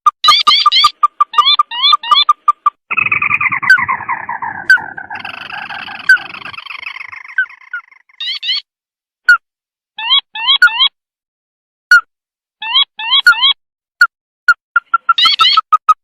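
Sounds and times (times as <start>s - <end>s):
bird call with churring trill: 0.2s - 8.6s, 14.8s - 15.7s.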